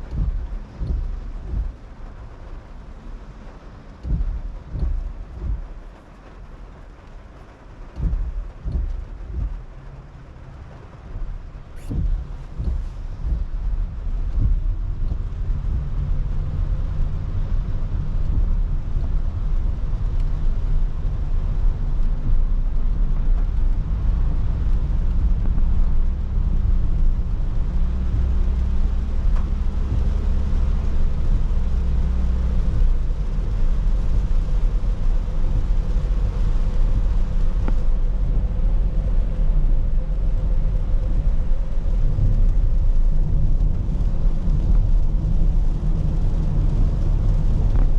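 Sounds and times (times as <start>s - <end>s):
car engine and tyres rumbling: 0.0s - 47.9s
water hissing under tyres: 0.0s - 47.9s.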